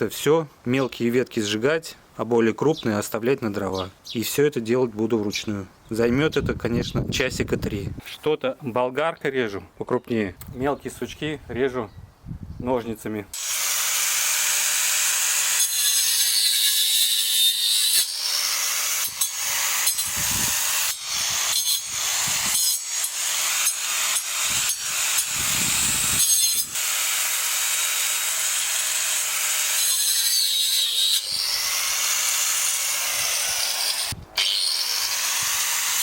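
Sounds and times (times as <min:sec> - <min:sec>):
angle grinder cutting wood: 0:13.4 - 0:36.0.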